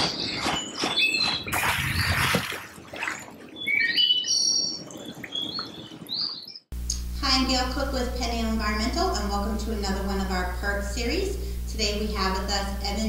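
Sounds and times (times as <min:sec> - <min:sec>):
birds chirping and whistling: 0:00.0 - 0:02.4, 0:03.4 - 0:06.7.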